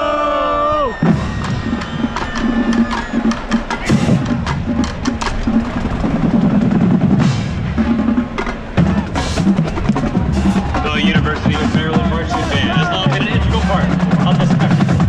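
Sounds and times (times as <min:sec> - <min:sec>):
snare drums with rim clicks: 0:01.0 - 0:07.6.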